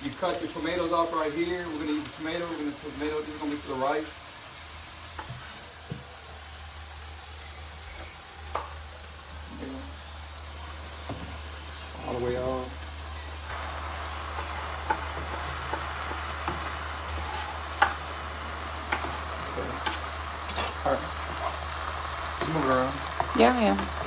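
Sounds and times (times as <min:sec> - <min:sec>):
food sizzling in a frying pan: 0:00.0 - 0:24.0
spatula stirring and tapping pan: 0:08.0 - 0:08.8, 0:14.2 - 0:24.0.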